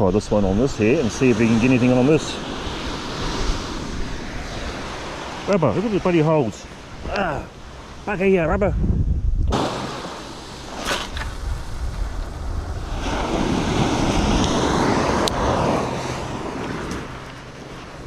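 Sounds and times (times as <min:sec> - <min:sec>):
wind rumbling on microphone: 0:00.0 - 0:18.0
sea surge washing over rocks: 0:09.5 - 0:17.3.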